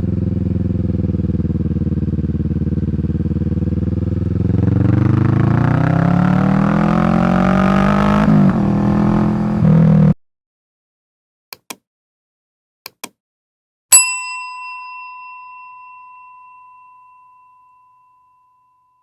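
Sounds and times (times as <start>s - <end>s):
bright bell-like ding: 13.9s - 19.0s.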